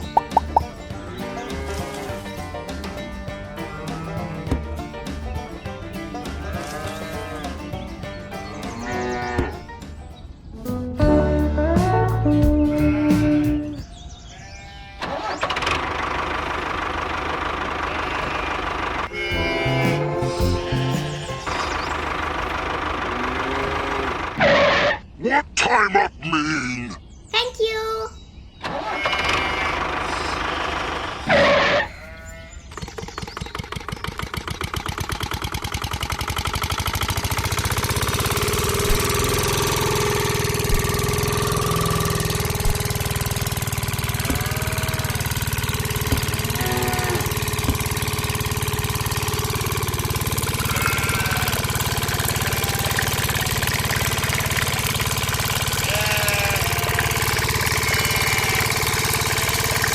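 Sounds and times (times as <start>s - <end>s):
small engine starting up: 14.7s - 25.0s, 28.6s - 59.9s.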